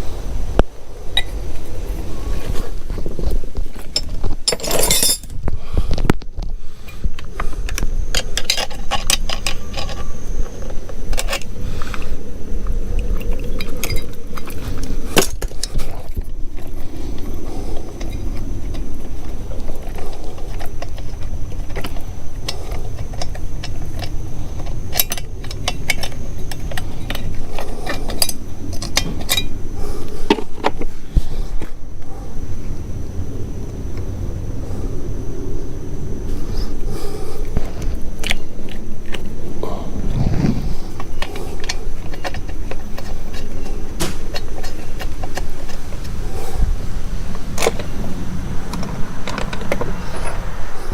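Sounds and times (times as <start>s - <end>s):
low background rumble: 0.0s - 50.9s
tools and metal parts clinking: 3.7s - 5.4s, 7.7s - 12.0s, 13.1s - 29.6s, 41.0s - 46.1s.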